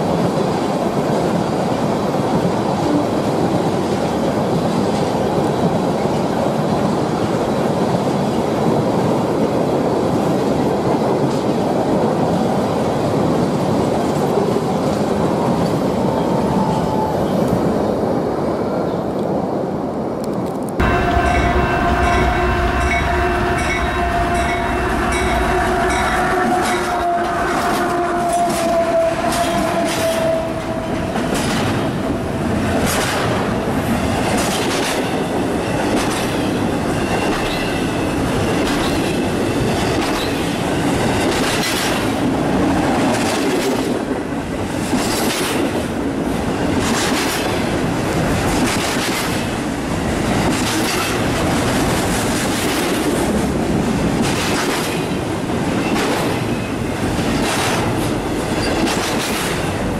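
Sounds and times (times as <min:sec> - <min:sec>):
freight train rolling rumble: 0:00.0 - 0:59.9
wheels clicking over rail joints: 0:54.1 - 0:59.9.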